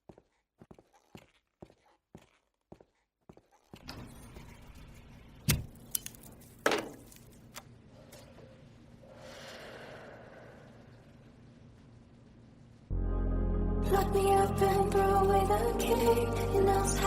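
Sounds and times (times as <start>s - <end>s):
faint low hum: 3.8s - 17.0s.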